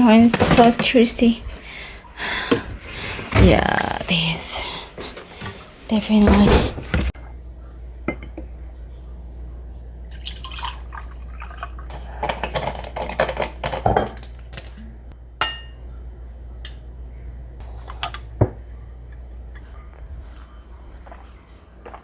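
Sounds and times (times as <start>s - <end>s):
dishes and glass clinking: 8.0s - 8.5s, 15.4s - 15.8s, 17.7s - 19.7s
steady low hum: 14.1s - 22.0s.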